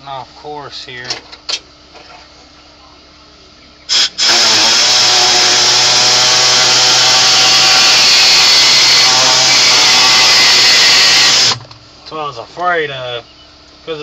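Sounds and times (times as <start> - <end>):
air cutting tool hissing whine: 3.9 - 11.6.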